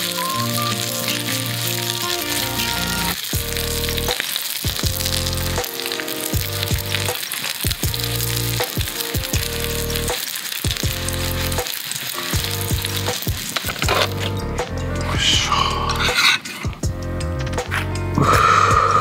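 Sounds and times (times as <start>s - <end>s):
meat patty sizzling in oil: 0.0s - 14.6s
soft background music: 0.0s - 19.0s.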